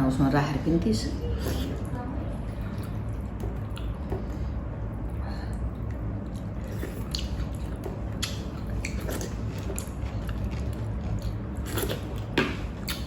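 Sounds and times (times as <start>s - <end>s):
steady low hum: 0.0s - 13.0s
wet squishy chewing: 1.4s - 13.0s
lip smacks: 6.3s - 10.4s, 11.2s - 13.0s.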